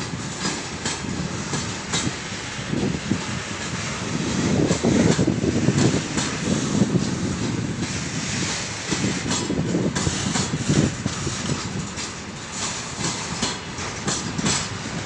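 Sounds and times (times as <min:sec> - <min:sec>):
wagon wheels rumbling on rails: 0:00.0 - 0:15.0
wheels clacking over rail joints: 0:00.0 - 0:15.0.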